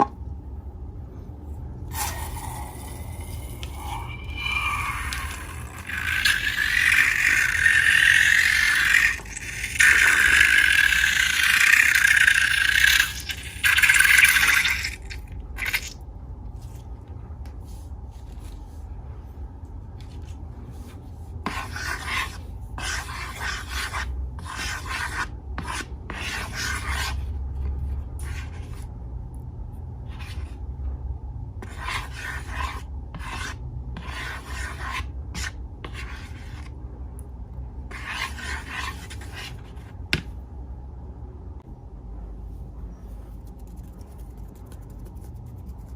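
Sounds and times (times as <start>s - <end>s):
low hum: 0.0s - 21.5s, 36.6s - 45.9s
hands rubbing slime and balloons: 43.2s - 45.9s.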